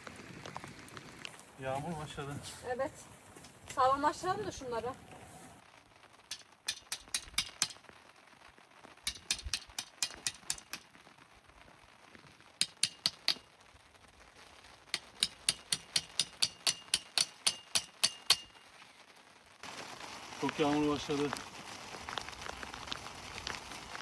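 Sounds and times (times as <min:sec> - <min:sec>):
tent pegs being hammered: 0:06.3 - 0:07.9, 0:09.0 - 0:10.9, 0:12.6 - 0:13.5, 0:14.9 - 0:18.7.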